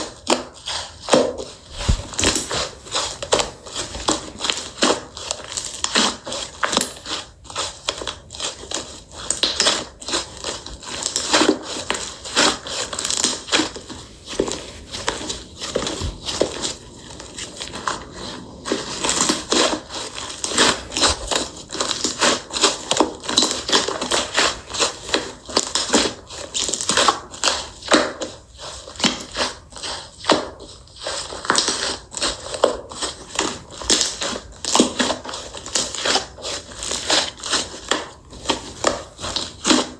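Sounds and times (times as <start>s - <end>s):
slime squished by hand: 1.7s - 4.5s.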